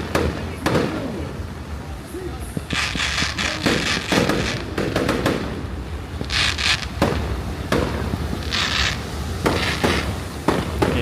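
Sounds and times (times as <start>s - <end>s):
fireworks crackling: 2.1s - 11.0s
fireworks bangs: 2.6s - 11.0s.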